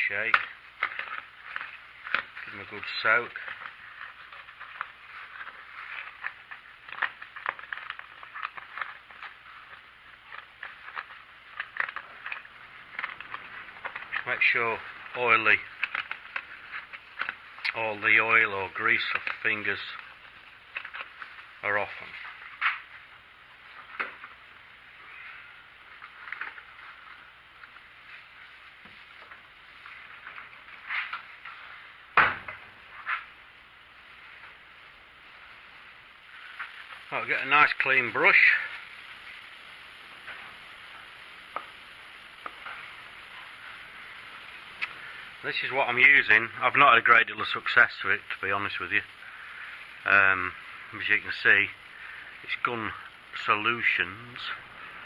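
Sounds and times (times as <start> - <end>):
small metal nuts rattling in container: 36.2 - 41.5.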